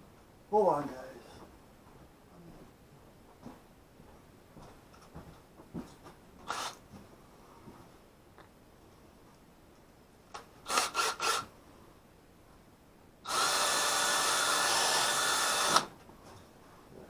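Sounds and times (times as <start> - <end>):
power drill reaming: 6.5 - 6.8, 10.7 - 11.5, 13.3 - 15.9.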